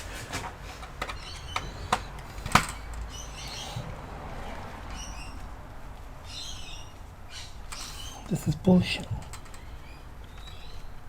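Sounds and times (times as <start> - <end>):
clicks of plastic and metal parts: 0.3 - 3.1.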